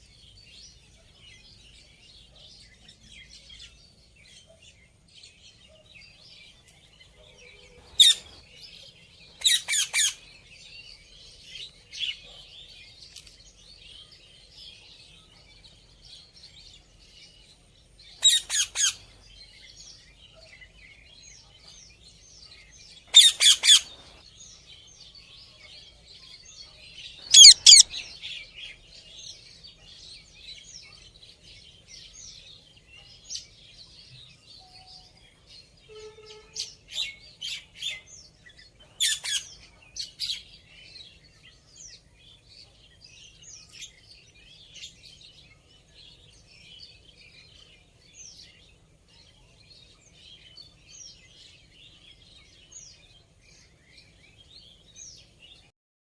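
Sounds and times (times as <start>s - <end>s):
small birds twittering: 0.0s - 55.7s
parrot screeching: 8.0s - 8.3s, 27.3s - 28.0s.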